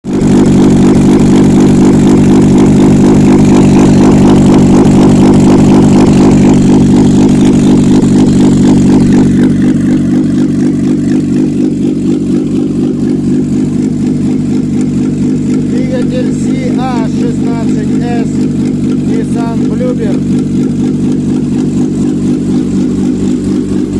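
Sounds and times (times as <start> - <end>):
car engine running steadily: 0.0 - 23.9.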